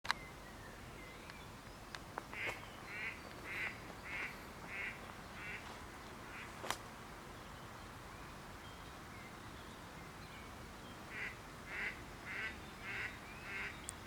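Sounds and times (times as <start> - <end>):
duck quacking: 2.4 - 5.6, 11.1 - 13.7.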